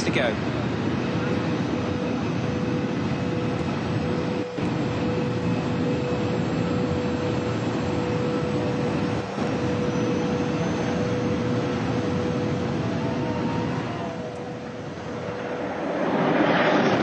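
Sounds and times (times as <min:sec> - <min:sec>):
high-speed train rushing: 0:03.6 - 0:17.0.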